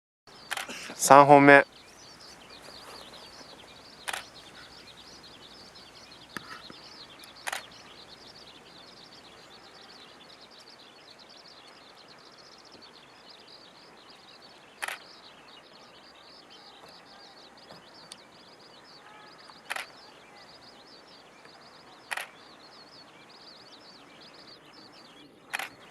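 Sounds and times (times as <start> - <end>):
dense high chirping: 0.3 - 12.7
short sharp clicks: 0.5 - 0.8, 4.0 - 4.8, 6.4 - 7.8, 14.8 - 15.0, 19.7 - 19.9, 22.1 - 22.3, 25.5 - 25.8.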